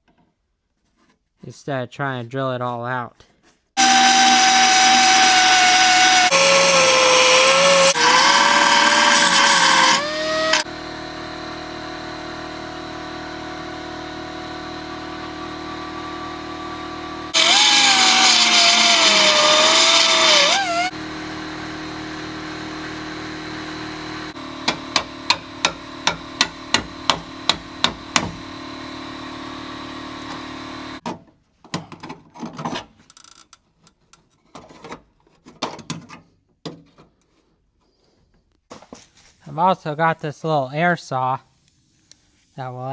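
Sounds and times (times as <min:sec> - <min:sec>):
belt sander grinding metal: 0:03.8 - 0:10.7, 0:17.1 - 0:21.0.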